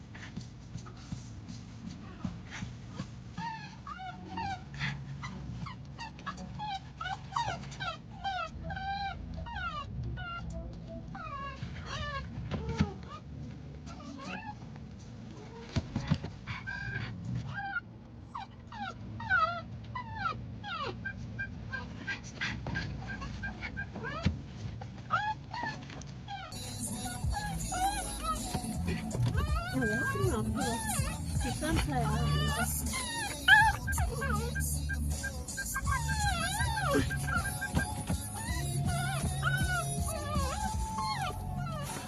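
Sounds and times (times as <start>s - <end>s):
dog whining: 2.0s - 13.3s, 13.9s - 14.6s, 15.4s - 42.0s
car cabin rumble: 27.2s - 42.0s.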